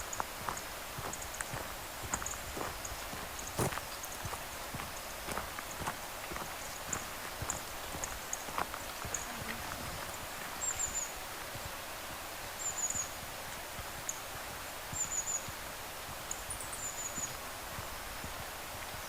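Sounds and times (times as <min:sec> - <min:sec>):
outdoor background hiss: 0:00.0 - 0:19.0
small bird high-pitched calls: 0:06.6 - 0:11.4, 0:12.5 - 0:13.2, 0:15.0 - 0:15.6, 0:16.3 - 0:17.4.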